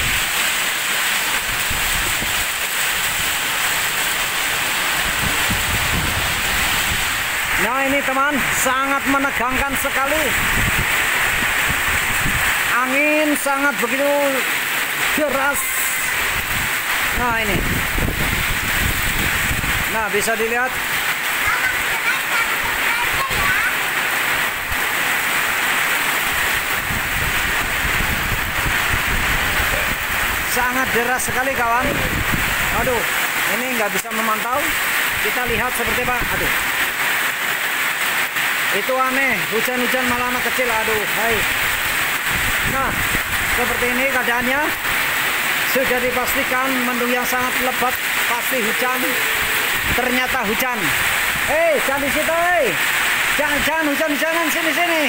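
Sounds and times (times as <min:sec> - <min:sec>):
heavy rain falling: 0:00.0 - 0:55.0
wind buffeting microphone: 0:04.9 - 0:07.6, 0:10.3 - 0:12.6, 0:16.2 - 0:19.9, 0:26.3 - 0:30.5, 0:31.8 - 0:33.0, 0:41.6 - 0:43.8.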